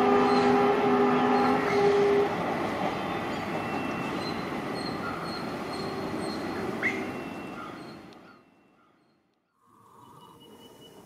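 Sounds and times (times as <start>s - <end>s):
train wheels rumbling on rails: 0.0s - 8.2s.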